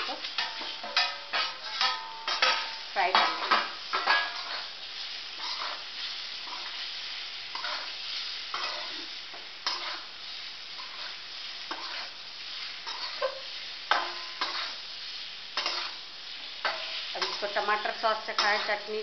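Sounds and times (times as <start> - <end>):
leaves sizzling in a pan: 0.0 - 19.0
metal spatula scraping a pan: 0.0 - 19.0.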